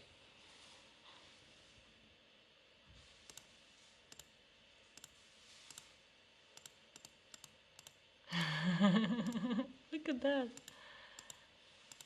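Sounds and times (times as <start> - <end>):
low room hiss: 0.0 - 12.0
computer mouse clicks: 3.2 - 3.5, 4.1 - 5.9, 6.5 - 8.0, 10.6 - 12.0.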